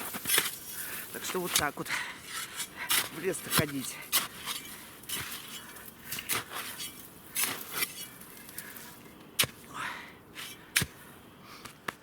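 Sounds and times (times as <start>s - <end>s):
shovel crunching into snow: 0.0s - 8.4s
shovel scraping snow: 0.0s - 8.4s.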